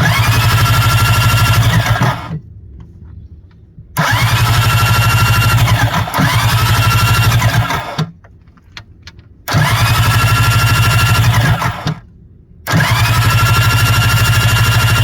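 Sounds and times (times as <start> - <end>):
jet ski engine starting and running: 0.0 - 2.4, 4.0 - 8.2, 9.5 - 15.0.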